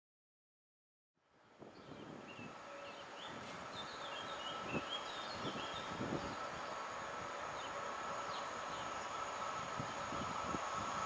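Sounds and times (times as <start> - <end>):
train rumbling: 1.4 - 11.0
birds chirping: 1.7 - 10.4.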